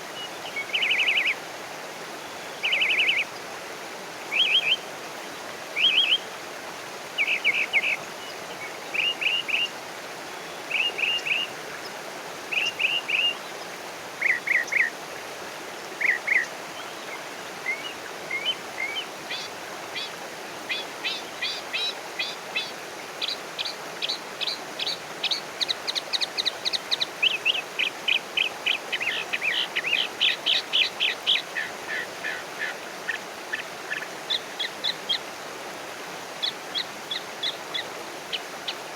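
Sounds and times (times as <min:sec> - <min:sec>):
wild birds singing: 0:20.7 - 0:35.2.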